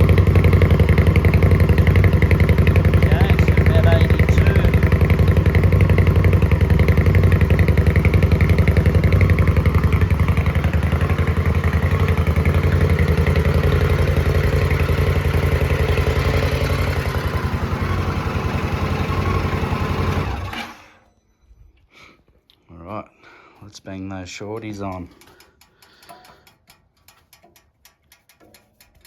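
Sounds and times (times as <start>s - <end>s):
motorcycle engine idling: 0.0s - 20.8s, 24.5s - 29.0s.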